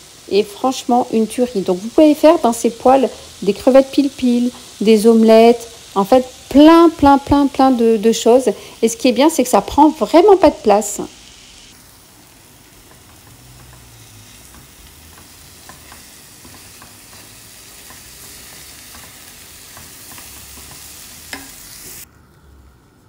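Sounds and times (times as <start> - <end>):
shrimp sizzling in a pan: 0.0 - 22.1
spoon tapping pan: 12.8 - 22.0
wooden spoon stirring: 12.8 - 22.0.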